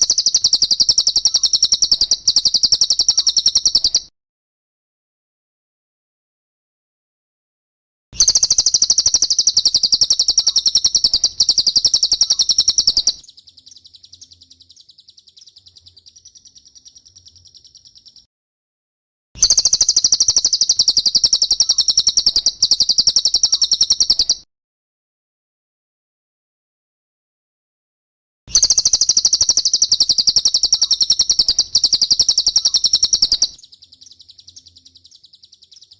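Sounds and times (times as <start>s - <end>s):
rapid high-pitched bird chirps: 0.0s - 4.1s, 8.2s - 18.3s, 19.4s - 24.5s, 28.5s - 35.9s
thin bird trill: 0.0s - 4.1s, 8.2s - 18.3s, 19.4s - 24.5s, 28.5s - 35.9s.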